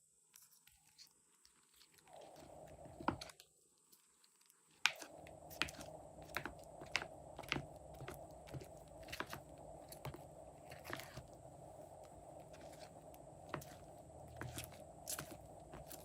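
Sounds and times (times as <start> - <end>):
faint steady hum: 0.0 - 16.0
slime kneaded by hand: 4.8 - 16.0.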